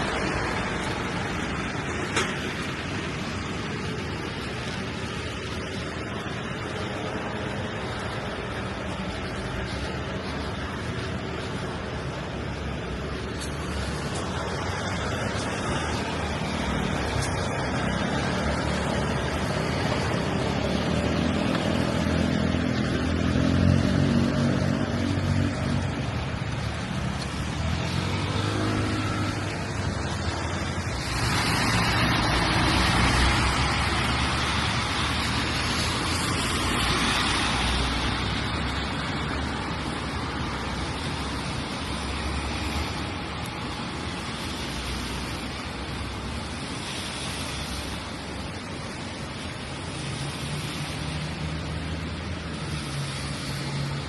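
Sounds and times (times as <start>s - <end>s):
steady rain: 0.0s - 54.0s
tyres hissing on wet asphalt: 0.0s - 54.0s.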